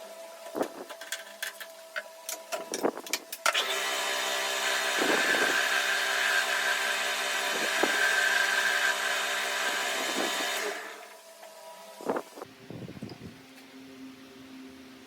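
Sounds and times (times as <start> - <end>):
power tool whining: 2.6 - 12.2.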